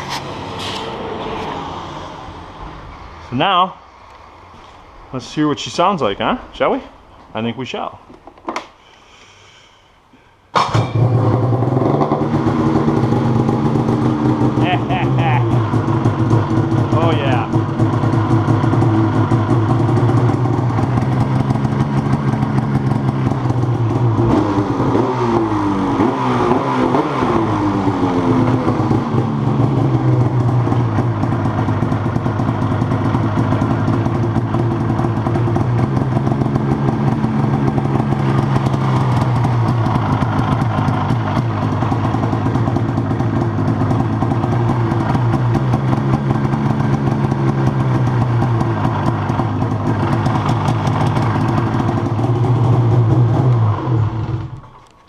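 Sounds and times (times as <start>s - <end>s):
snowmobile engine revving and idling: 10.6s - 54.6s.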